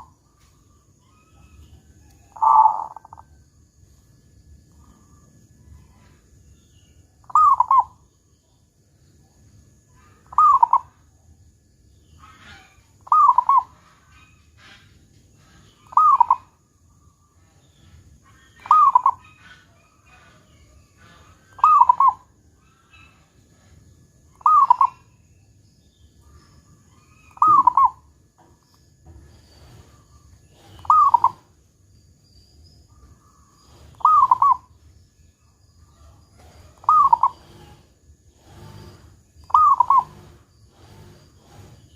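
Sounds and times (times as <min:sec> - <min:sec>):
dove cooing: 0:02.2 - 0:03.3, 0:07.3 - 0:08.0, 0:10.2 - 0:11.0, 0:12.4 - 0:14.1, 0:14.7 - 0:16.6, 0:18.5 - 0:23.3, 0:24.4 - 0:25.1, 0:27.3 - 0:28.0, 0:29.6 - 0:31.5, 0:33.7 - 0:34.7, 0:36.0 - 0:37.8, 0:38.4 - 0:41.7.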